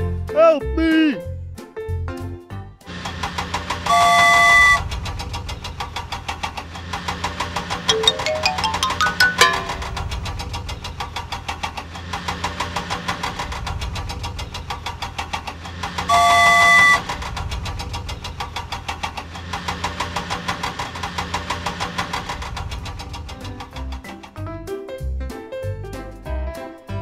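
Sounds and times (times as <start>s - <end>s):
loud horn-like blast: 3.9s - 4.8s, 16.1s - 17.0s.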